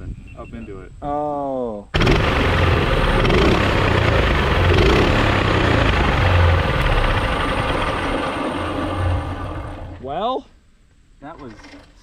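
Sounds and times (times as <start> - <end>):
mini bike engine rumble: 2.0 - 10.1.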